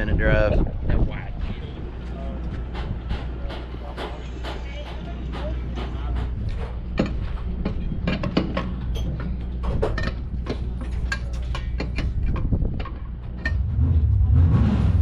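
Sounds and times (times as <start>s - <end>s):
vehicle engine humming: 0.0s - 15.0s
clicks and rattles: 2.8s - 13.6s.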